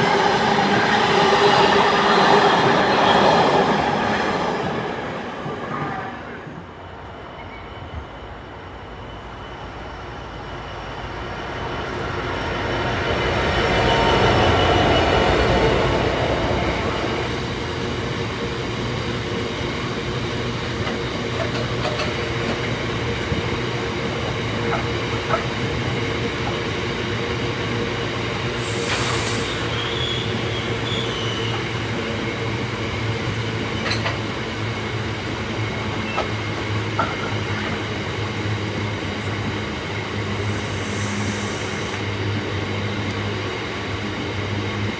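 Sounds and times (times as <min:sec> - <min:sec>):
locomotive hum: 0:00.0 - 0:44.8
train on rails: 0:00.0 - 0:44.9
brief hiss: 0:28.6 - 0:31.5, 0:40.3 - 0:42.1.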